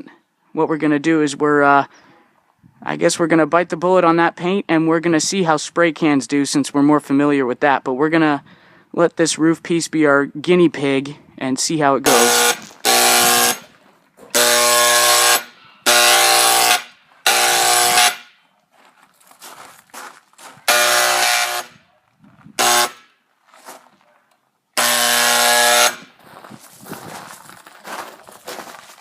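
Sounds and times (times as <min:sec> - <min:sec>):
electric paint sprayer buzzing: 0:12.1 - 0:13.7, 0:14.3 - 0:18.2, 0:20.7 - 0:21.7, 0:22.6 - 0:23.0, 0:24.8 - 0:26.1.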